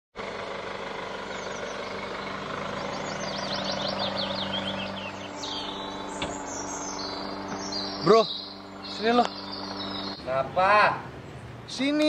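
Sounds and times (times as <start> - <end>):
birds chirping: 0.2 - 12.0
car engine idling: 0.2 - 12.0.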